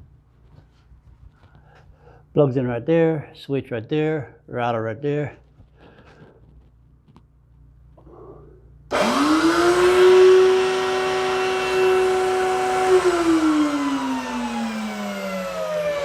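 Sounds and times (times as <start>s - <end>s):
wood router motor whine: 8.9s - 16.0s.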